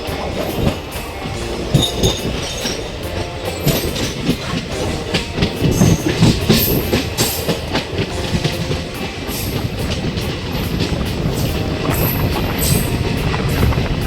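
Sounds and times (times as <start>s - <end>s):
high wheel squeals: 0.0s - 14.0s
train rumbling on track: 0.0s - 14.0s
wheels clattering over rail joints: 0.0s - 14.0s.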